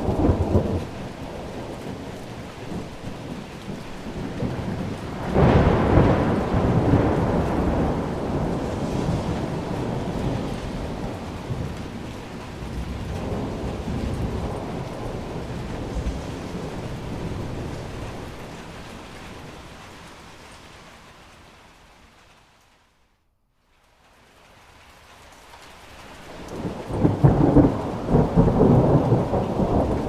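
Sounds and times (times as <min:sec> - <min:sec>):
rolling thunder: 0:00.0 - 0:20.4, 0:26.3 - 0:30.0
steady rain: 0:00.0 - 0:30.0.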